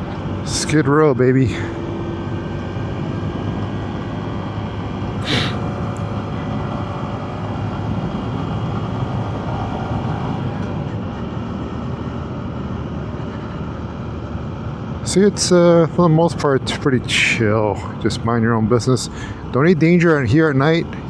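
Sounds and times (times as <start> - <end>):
wind and road noise: 0.0 - 21.0
short hiss: 5.2 - 5.6.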